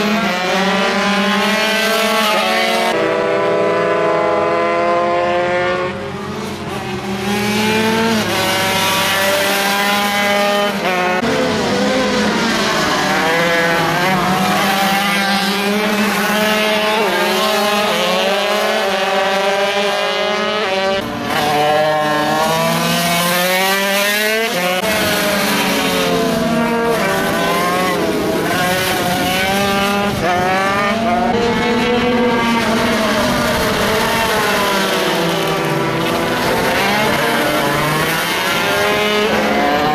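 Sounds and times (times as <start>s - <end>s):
minibike engines racing: 0.0s - 39.9s.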